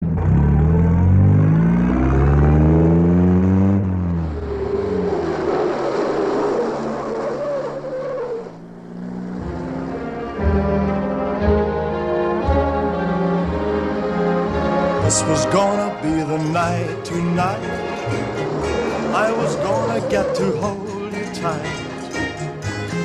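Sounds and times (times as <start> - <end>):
car engine accelerating hard: 0.0 - 23.0
long wavering tyre squeal: 4.1 - 11.1, 17.4 - 23.0.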